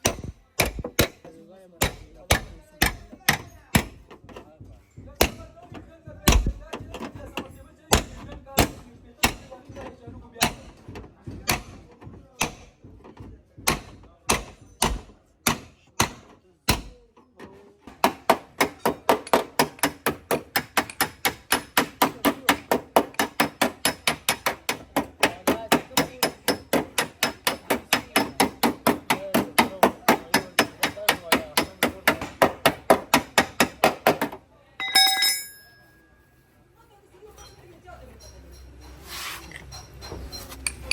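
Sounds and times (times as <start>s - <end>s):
hammer on sheet metal: 0.0s - 4.0s, 17.9s - 35.7s.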